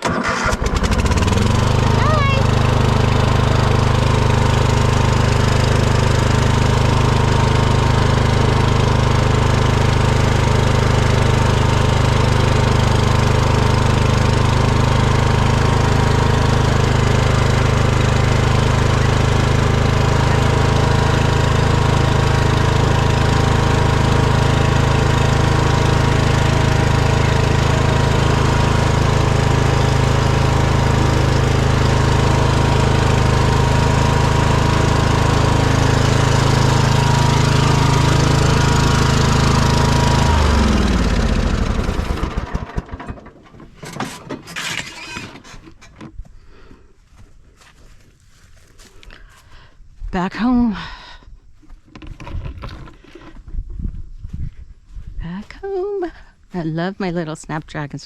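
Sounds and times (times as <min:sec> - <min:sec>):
small engine humming steadily: 0:00.0 - 0:43.3.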